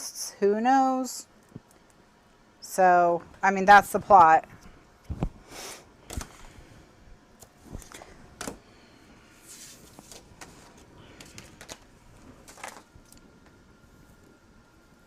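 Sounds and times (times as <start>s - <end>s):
paper rustling: 9.4s - 13.2s.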